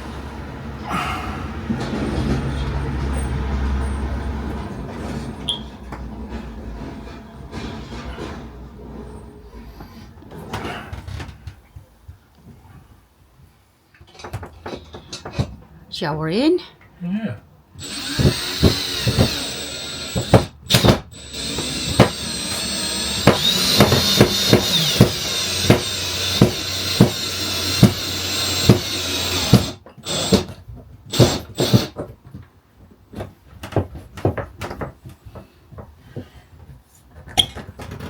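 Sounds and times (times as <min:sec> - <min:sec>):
power drill whining: 0:17.8 - 0:30.5, 0:31.1 - 0:32.0.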